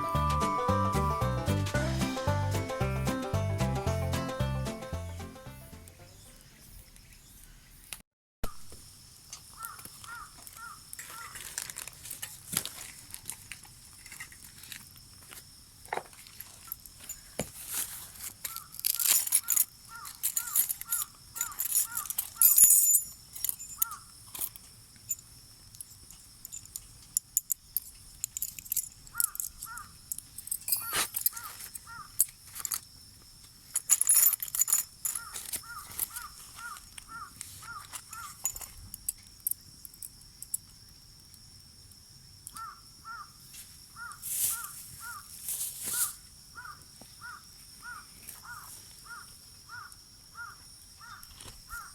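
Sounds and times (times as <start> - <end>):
crow cawing: 9.6 - 11.4, 19.9 - 20.6, 29.2 - 29.9, 31.4 - 32.2, 35.2 - 38.3, 42.6 - 43.4, 44.0 - 45.3, 46.6 - 51.9
sharp clicks and rustling: 18.2 - 32.9, 33.7 - 40.8.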